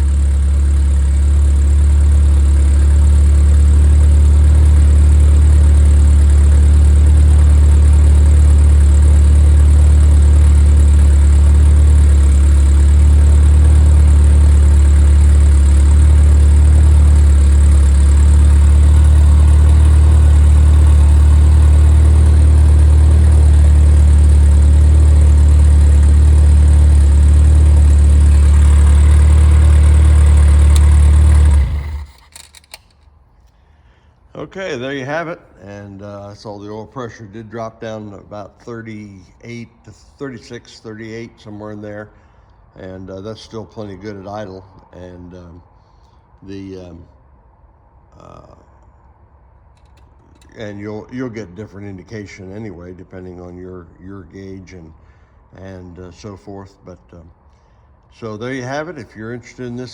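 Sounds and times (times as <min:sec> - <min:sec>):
car engine idling: 0:00.0 - 0:34.6.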